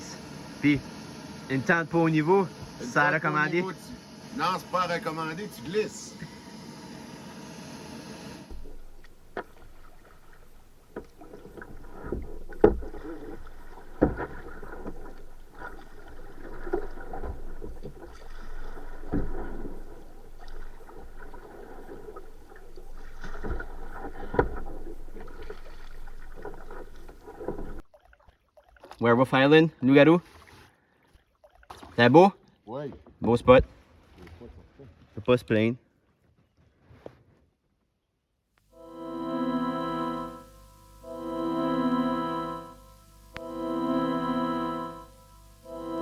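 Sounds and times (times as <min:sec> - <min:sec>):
paddle dipping in water: 0:00.0 - 0:29.1, 0:29.8 - 0:35.2.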